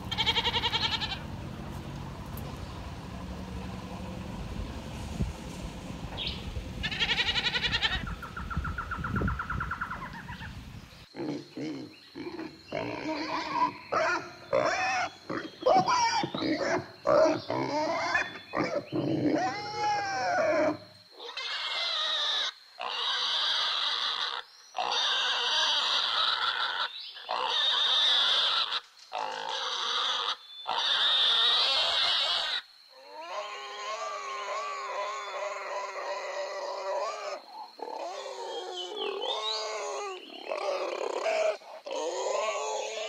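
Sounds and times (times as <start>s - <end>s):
pigs grunting and squealing: 11.2s - 43.0s.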